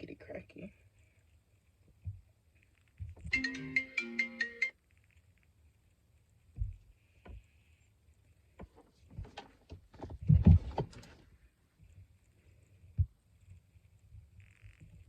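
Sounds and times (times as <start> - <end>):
electronic jingle: 3.3 - 4.7.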